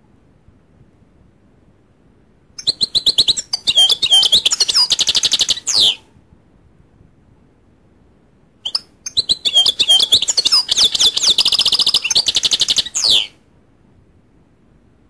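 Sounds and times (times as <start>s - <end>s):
goldfinch singing: 2.6s - 6.0s, 8.6s - 13.3s.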